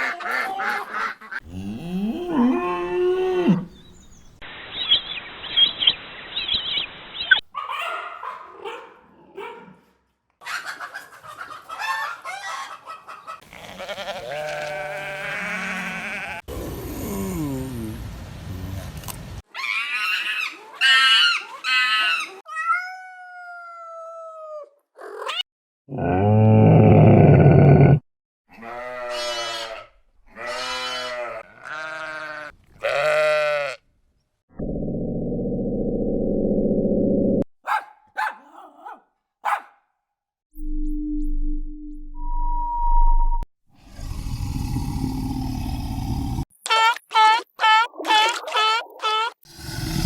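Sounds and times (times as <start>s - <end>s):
bleating farm animal calls: 13.5s - 16.4s, 28.5s - 33.8s.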